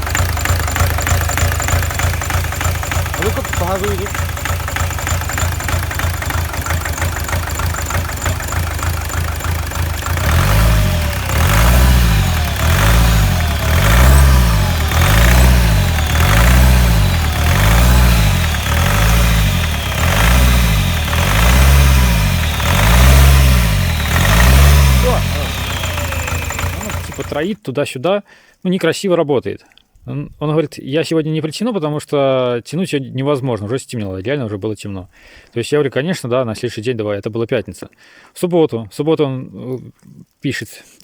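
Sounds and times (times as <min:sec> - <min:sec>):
rough diesel engine revving: 0:00.0 - 0:27.4.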